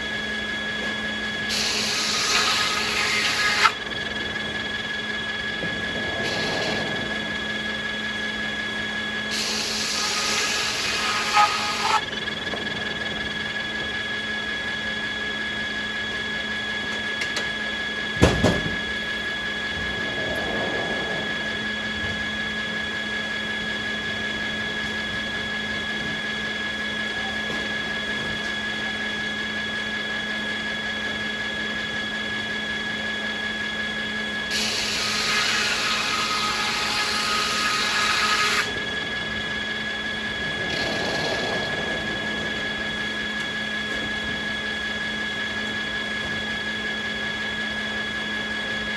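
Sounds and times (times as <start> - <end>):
sawmill machinery hum and whine: 0.0 - 48.9
noisy hissing surge: 1.5 - 12.1, 18.2 - 24.2
sharp knock: 18.2 - 18.8.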